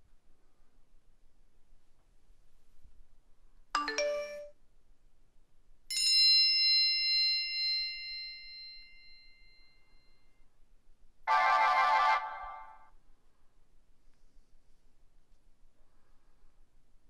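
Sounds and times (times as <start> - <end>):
bell-like phone ding: 3.8 - 4.5
two-note phone chime: 3.8 - 4.5.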